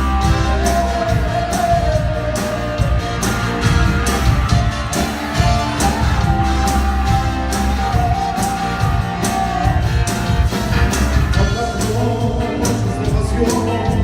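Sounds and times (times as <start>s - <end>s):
steady bass: 0.0s - 14.0s.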